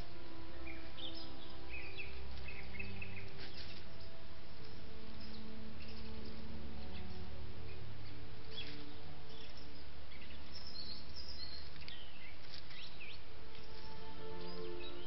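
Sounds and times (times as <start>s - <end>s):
microphone hiss: 0.0s - 15.0s
songbird chirps: 0.0s - 15.0s.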